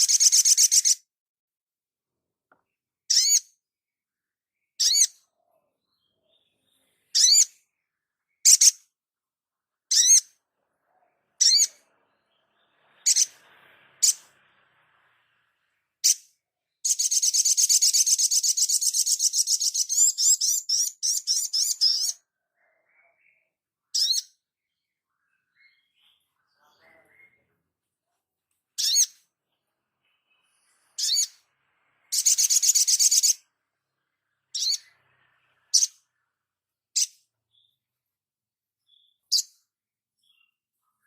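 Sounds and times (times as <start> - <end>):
bird chattering trill: 0.0 - 1.0, 3.1 - 3.5, 9.9 - 10.3, 16.8 - 22.2, 32.1 - 33.4
songbird calling: 0.0 - 1.1, 4.6 - 9.0, 11.0 - 14.4, 16.0 - 27.6, 28.8 - 36.3.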